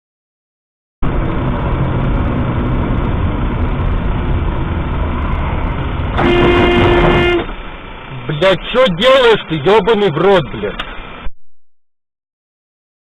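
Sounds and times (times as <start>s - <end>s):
car engine and road noise: 1.0s - 11.3s
car horn blast: 6.1s - 7.7s.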